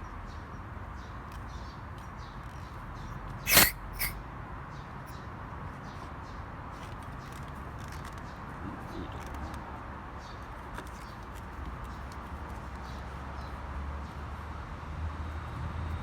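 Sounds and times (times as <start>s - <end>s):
gas hissing from hose: 3.5s - 4.2s.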